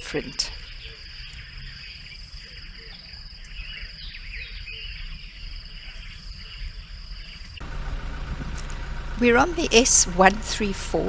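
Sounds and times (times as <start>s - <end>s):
insects trilling: 0.0s - 7.6s
low background rumble: 5.8s - 11.0s.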